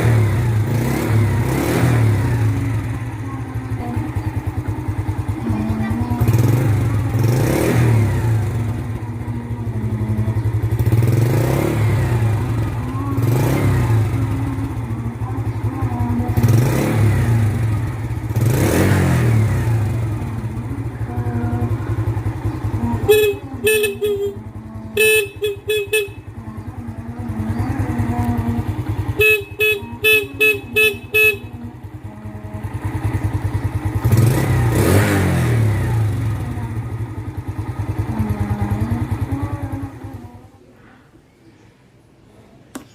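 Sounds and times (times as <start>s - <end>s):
motorcycle engine running: 0.0s - 41.6s.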